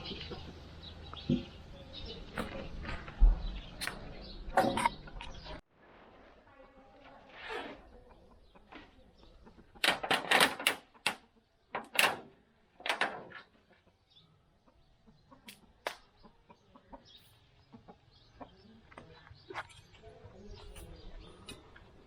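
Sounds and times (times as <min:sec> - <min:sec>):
chicken clucking: 0:00.0 - 0:05.6, 0:07.8 - 0:09.8, 0:13.4 - 0:22.0.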